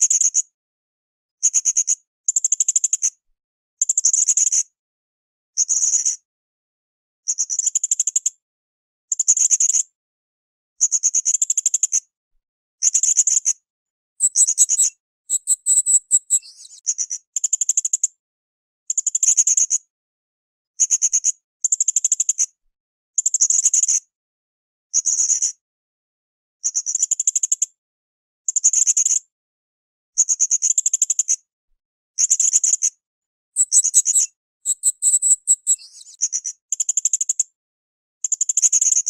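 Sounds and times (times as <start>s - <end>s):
parrot buzzy trilled calls: 14.2s - 16.5s, 33.6s - 35.8s.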